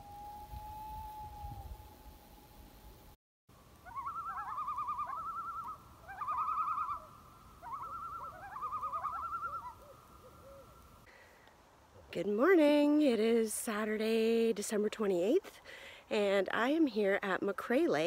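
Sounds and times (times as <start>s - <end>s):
bird quavering call: 3.8s - 10.8s.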